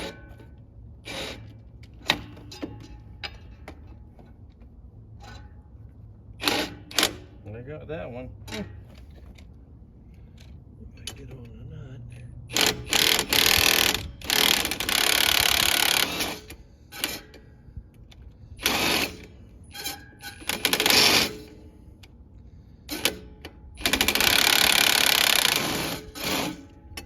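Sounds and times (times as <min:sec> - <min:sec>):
impact wrench running: 0:12.5 - 0:17.4, 0:18.6 - 0:21.6, 0:22.9 - 0:26.8.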